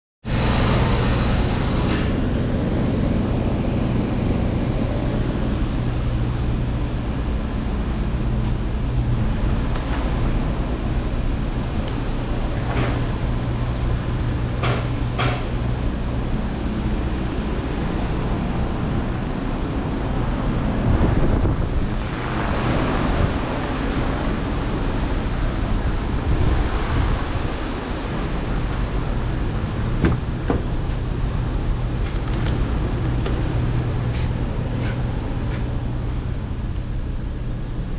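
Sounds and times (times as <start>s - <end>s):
engine idling: 0.3s - 21.2s.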